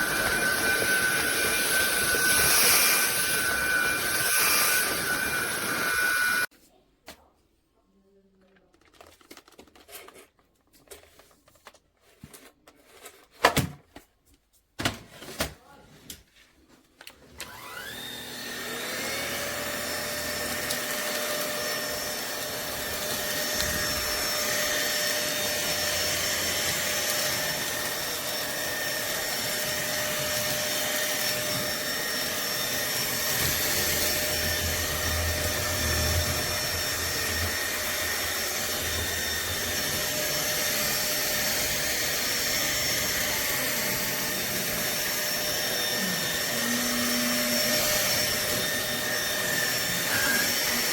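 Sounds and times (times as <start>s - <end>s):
vacuum cleaner motor whining: 0.0s - 6.5s, 17.2s - 50.9s.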